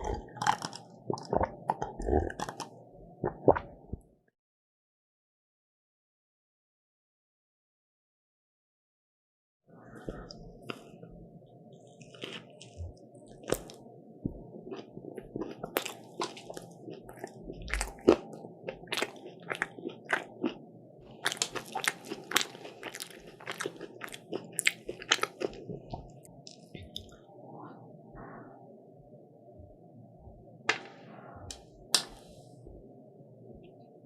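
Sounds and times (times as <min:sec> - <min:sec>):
crisp pastry crunching when chewed: 0:00.0 - 0:02.8, 0:12.0 - 0:13.8, 0:14.6 - 0:27.2.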